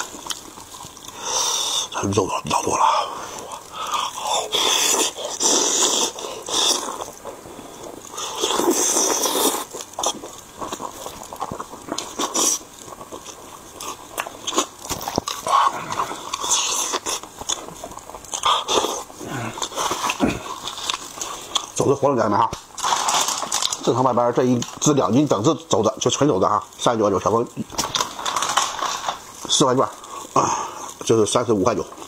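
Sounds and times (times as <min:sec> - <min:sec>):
wet chewing and lip-smacking: 0:00.0 - 0:01.2, 0:03.4 - 0:21.8.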